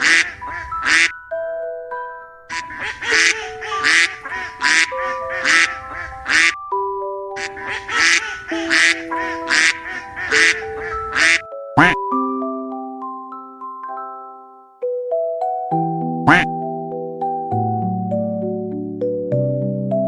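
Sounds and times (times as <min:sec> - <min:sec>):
animal harsh calls: 0:00.0 - 0:01.1, 0:02.5 - 0:06.6, 0:07.4 - 0:12.0, 0:16.3 - 0:16.5
light bell-like music: 0:00.1 - 0:19.5.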